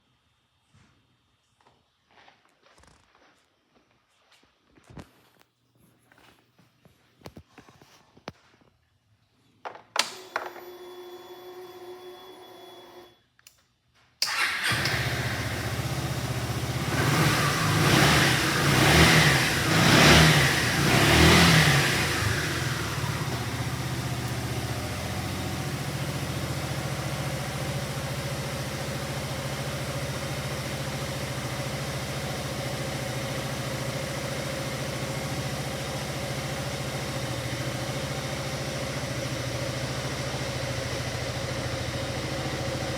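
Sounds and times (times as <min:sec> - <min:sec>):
scooter engine revving and idling: 0:14.3 - 0:42.9.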